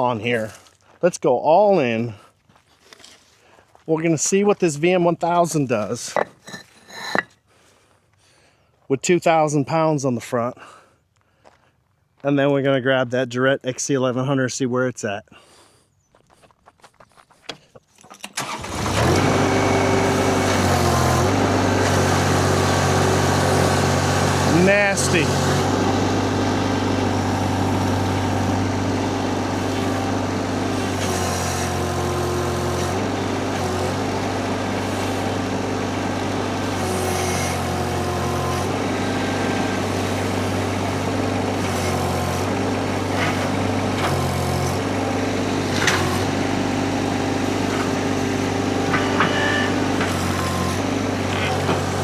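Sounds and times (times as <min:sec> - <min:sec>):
skid steer engine under load: 0:18.2 - 0:52.0.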